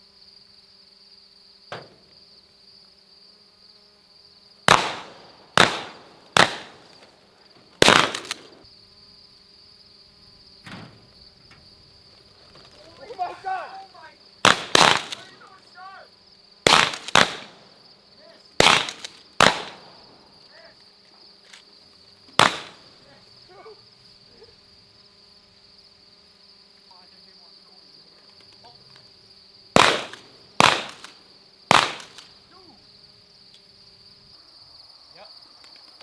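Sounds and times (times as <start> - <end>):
high insect trill: 0.0 - 36.0
shotgun shots with echo: 4.7 - 6.9, 7.8 - 8.6, 14.4 - 15.4, 16.7 - 17.6, 18.6 - 20.0, 22.4 - 22.9, 29.8 - 32.3.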